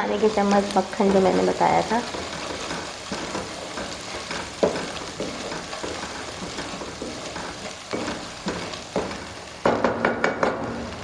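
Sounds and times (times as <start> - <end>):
onion paste sizzling in oil: 0.0 - 11.0
wooden spatula scraping pan: 0.2 - 9.5
spatula knocking against pan: 2.1 - 10.6.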